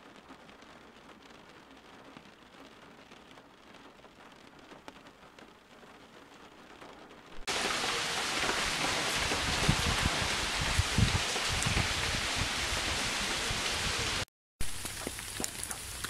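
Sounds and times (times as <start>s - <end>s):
light rain patter: 0.0s - 16.0s
heavy rain hiss: 7.4s - 16.0s.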